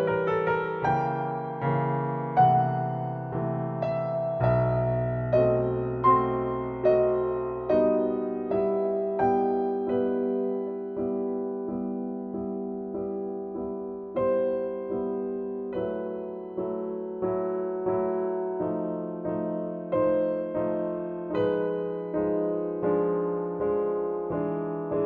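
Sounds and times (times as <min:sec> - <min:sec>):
soft slow piano melody: 0:00.0 - 0:25.0.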